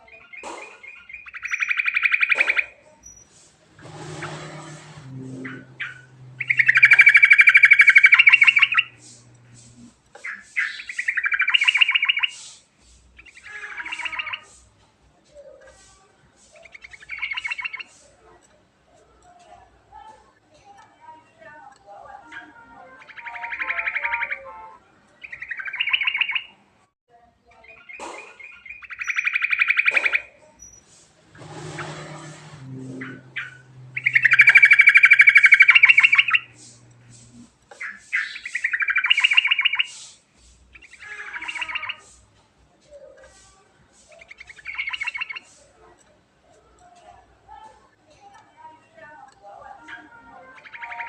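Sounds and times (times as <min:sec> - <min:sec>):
bird song trills: 0:00.0 - 0:12.6, 0:13.2 - 0:14.7, 0:16.5 - 0:18.2, 0:20.6 - 0:26.6, 0:27.6 - 0:42.2, 0:44.0 - 0:45.6, 0:49.2 - 0:51.0
bulbul singing fast repeated notes: 0:00.3 - 0:03.2, 0:05.2 - 0:12.4, 0:22.2 - 0:26.6, 0:32.7 - 0:40.1
harsh hissy bird phrase: 0:01.4 - 0:14.7, 0:15.6 - 0:18.2, 0:22.2 - 0:25.8, 0:27.7 - 0:42.3, 0:43.2 - 0:45.8.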